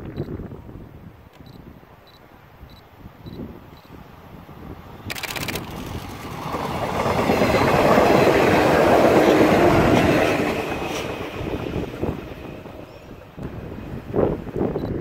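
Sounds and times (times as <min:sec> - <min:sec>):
electric train passing: 0:03.9 - 0:15.0.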